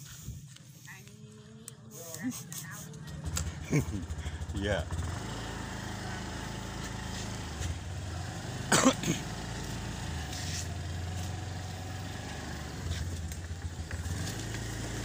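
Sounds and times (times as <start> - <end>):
motor engine running at low speed: 0.0 - 15.0.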